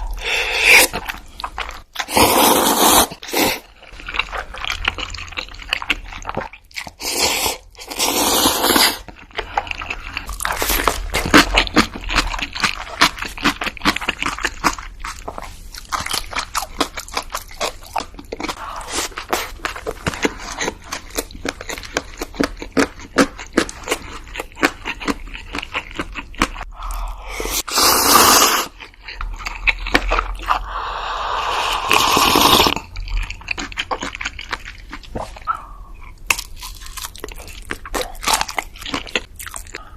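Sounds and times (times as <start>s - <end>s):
crunchy bites and chewing: 36.1s - 39.8s.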